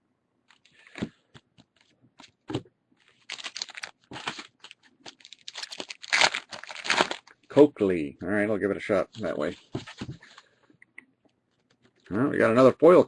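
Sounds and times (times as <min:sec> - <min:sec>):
foil wrapper crinkling and tearing: 0:03.0 - 0:07.4.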